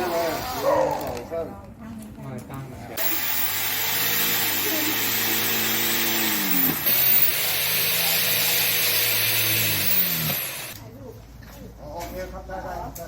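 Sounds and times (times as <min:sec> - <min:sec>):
electric power tool whirring: 0:03.0 - 0:10.8.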